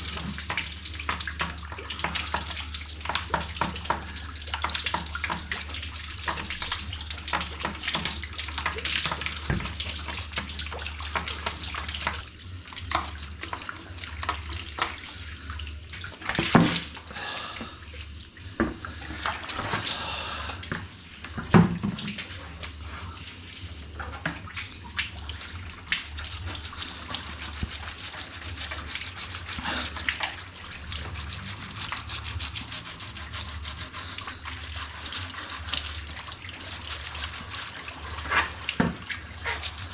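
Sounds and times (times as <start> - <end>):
tap water running and splashing: 0.0 - 39.9
parts scrubbed by hand: 26.2 - 39.9.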